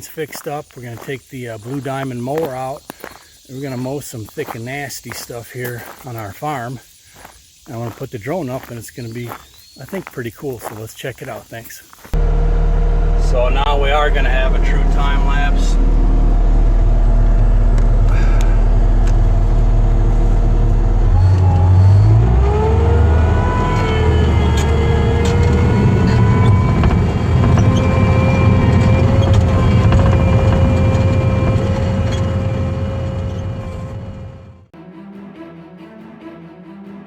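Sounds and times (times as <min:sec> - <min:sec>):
diesel engine running: 0:12.1 - 0:34.7
brush cutter whine: 0:12.2 - 0:34.4.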